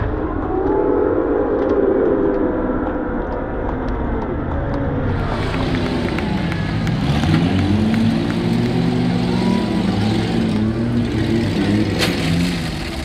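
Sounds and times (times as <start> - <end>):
car engines revving: 3.7 - 13.0.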